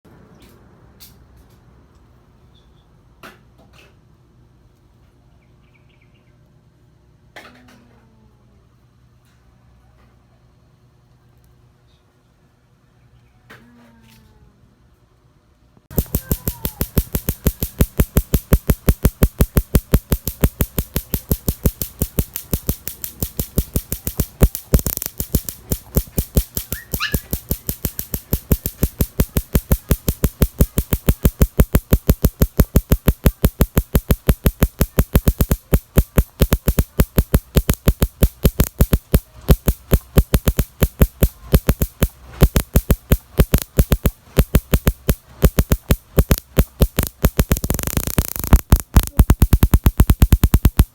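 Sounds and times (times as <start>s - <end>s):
small motorcycle engine popping: 15.9s - 50.9s.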